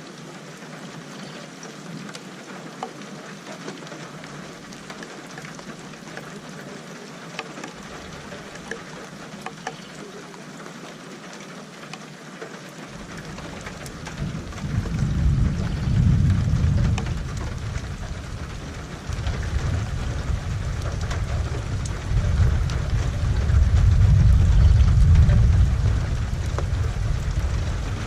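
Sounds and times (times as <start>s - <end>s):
sharp raindrop ticks: 0.0s - 28.0s
steady rain falling: 0.0s - 28.0s
low rumble of thunder: 13.0s - 28.0s.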